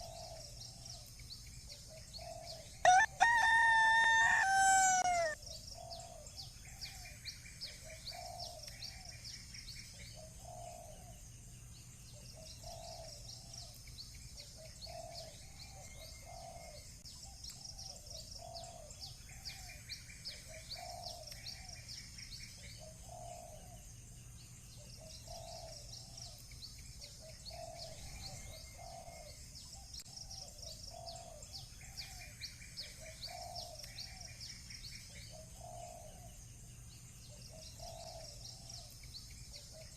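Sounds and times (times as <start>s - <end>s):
birds chirping and trilling: 0.0s - 39.9s
dove cooing: 3.5s - 6.0s.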